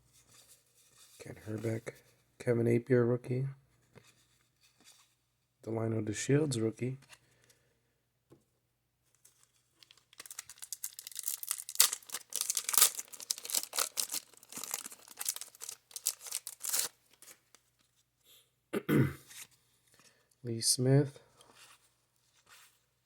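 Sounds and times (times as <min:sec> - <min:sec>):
card pack wrapper crinkling: 0:09.2 - 0:17.6.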